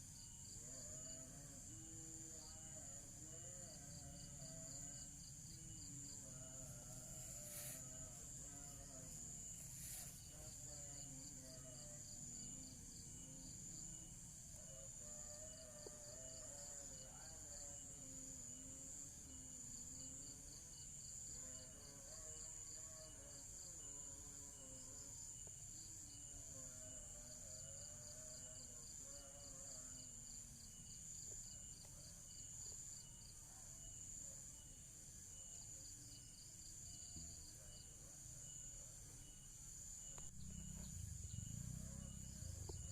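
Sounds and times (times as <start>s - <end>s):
constant high ringing: 0.0s - 31.8s
crickets chirping: 0.0s - 42.9s
faint distant music or voices: 0.1s - 42.9s.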